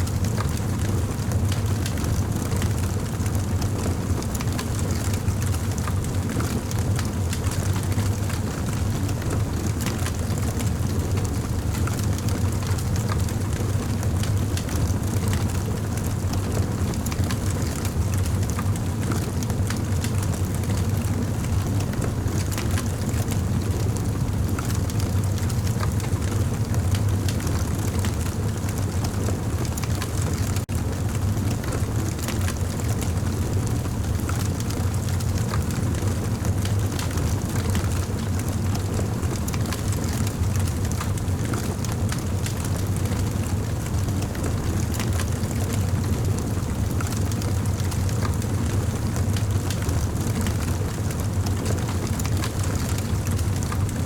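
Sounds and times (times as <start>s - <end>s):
campfire flames rumbling: 0.0s - 54.0s
wood crackling and popping: 0.2s - 10.6s, 25.3s - 54.0s.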